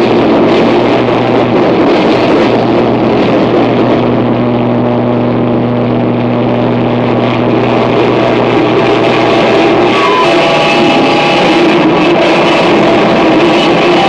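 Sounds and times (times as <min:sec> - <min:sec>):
distorted electronic noise: 0:00.0 - 0:14.0
low hum: 0:00.0 - 0:14.0
high held tone: 0:04.6 - 0:14.0.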